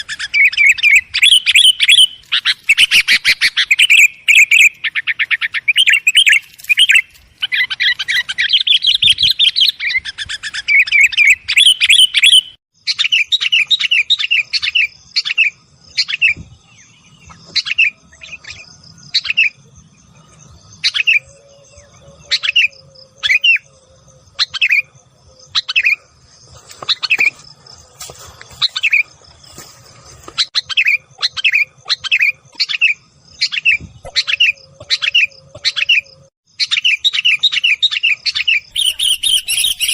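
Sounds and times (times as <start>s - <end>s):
bird chattering: 30.4s - 39.9s
short bird chirps: 30.5s - 39.9s.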